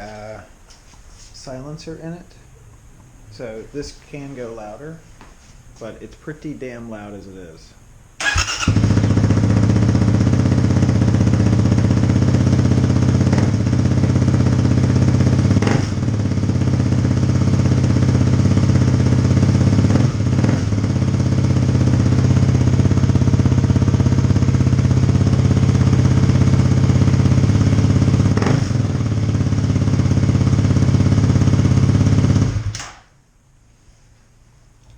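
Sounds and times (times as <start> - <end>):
motorcycle engine idling: 8.2 - 32.7.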